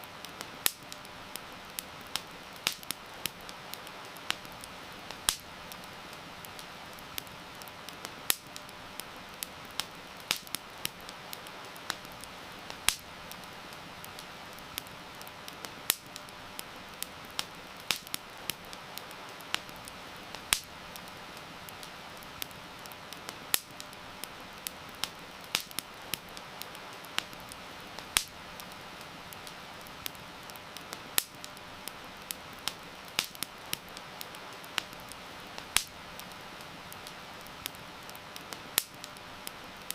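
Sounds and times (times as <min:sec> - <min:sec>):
rain hissing: 0:00.0 - 0:39.9
wood fire crackling and popping: 0:00.0 - 0:39.9.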